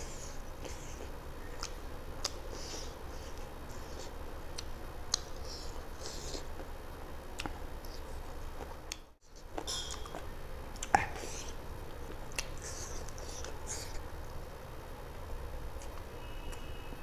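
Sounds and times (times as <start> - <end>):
wet chewing and mouth noises: 0.0 - 6.7, 7.4 - 14.2
steady low hum: 0.0 - 17.0
lip smacks and clicks: 0.6 - 2.5, 4.5 - 6.4, 7.4 - 14.0, 15.8 - 16.6.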